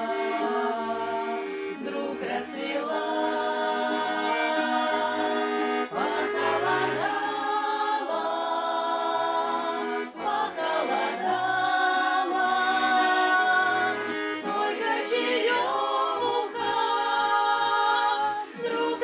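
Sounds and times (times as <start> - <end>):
accordion playing folk melody: 0.0 - 19.0
women's ensemble singing: 0.0 - 19.0.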